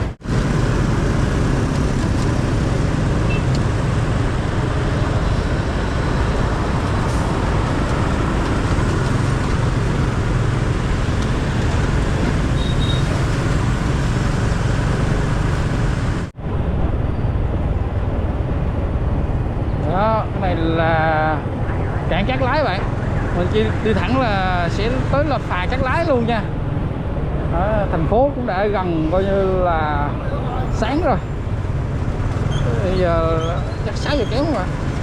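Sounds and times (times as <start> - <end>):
wind rush on microphone: 0.0 - 24.7
motorcycle engine drone: 0.0 - 25.8
passing traffic: 0.0 - 35.0.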